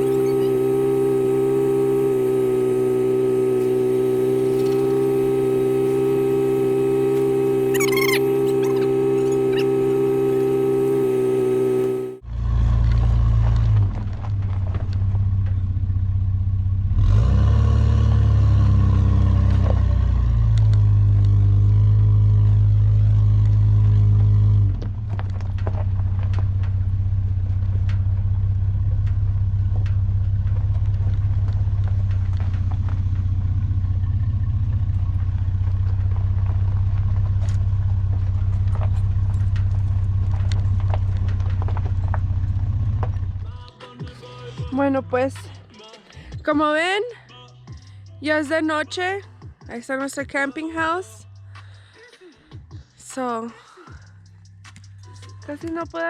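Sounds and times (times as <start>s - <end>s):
car engine and road drone: 0.0s - 49.4s, 50.8s - 56.0s
music: 24.8s - 33.5s, 35.0s - 56.0s.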